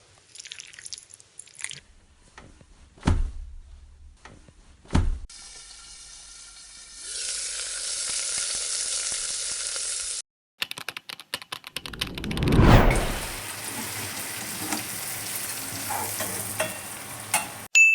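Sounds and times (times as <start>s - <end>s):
food sizzling in a hot pan: 5.4s - 10.2s, 13.2s - 17.7s.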